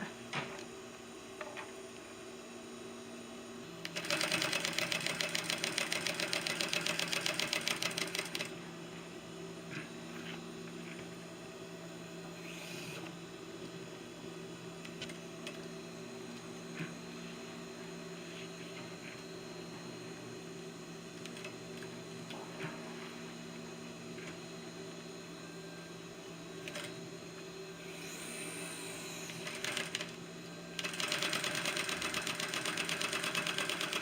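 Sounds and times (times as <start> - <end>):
sewing machine stitching: 3.9 - 8.5, 29.3 - 30.1, 30.8 - 34.0.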